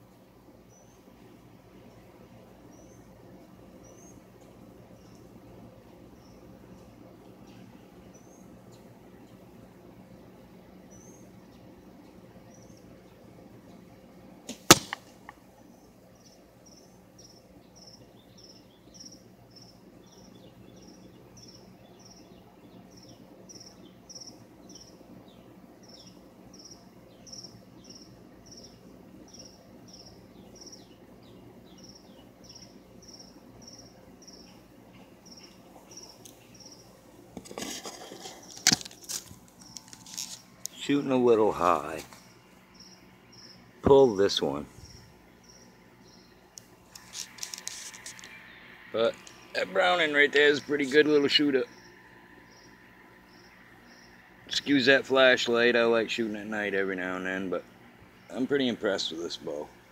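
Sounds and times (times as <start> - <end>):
bird chirping: 2.7 - 3.2, 3.8 - 4.2, 6.1 - 9.4, 10.9 - 11.7, 15.7 - 37.0, 42.2 - 43.7, 44.3 - 47.3, 48.0 - 54.2
sharp knock: 14.6 - 15.0
rustling and bumps: 37.3 - 40.5.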